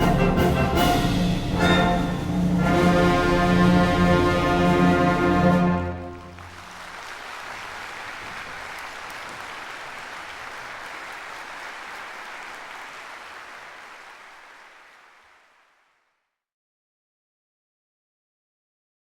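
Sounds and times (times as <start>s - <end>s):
audience applauding: 5.0s - 16.1s.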